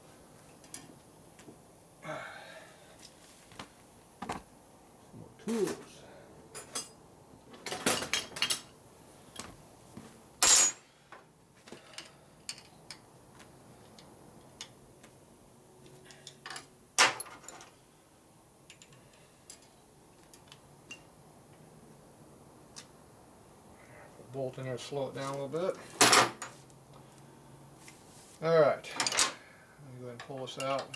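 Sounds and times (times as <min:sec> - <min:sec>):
hand tools and metal parts clinking: 0:06.5 - 0:08.7, 0:10.4 - 0:10.8, 0:11.7 - 0:13.0, 0:15.8 - 0:17.8, 0:28.9 - 0:29.4, 0:30.2 - 0:30.9.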